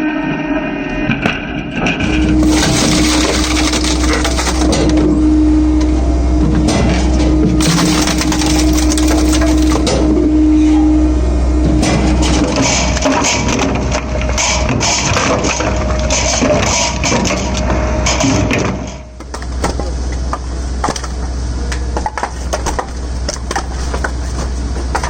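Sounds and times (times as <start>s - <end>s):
low motor hum: 1.9s - 25.0s
wood cracking and crunching: 2.3s - 5.0s, 7.6s - 10.0s, 19.2s - 25.0s.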